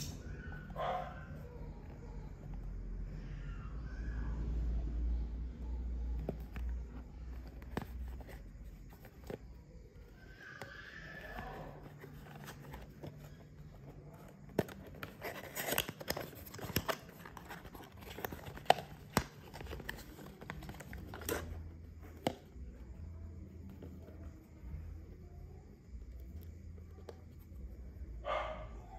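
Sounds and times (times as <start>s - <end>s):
packaging crinkling and clicking: 14.5s - 21.6s.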